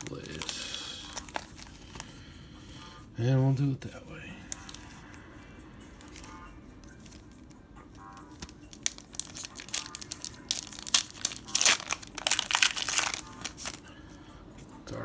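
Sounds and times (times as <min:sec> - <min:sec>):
foil wrapper crinkling and tearing: 0:00.0 - 0:02.1, 0:04.5 - 0:04.9, 0:08.2 - 0:13.9.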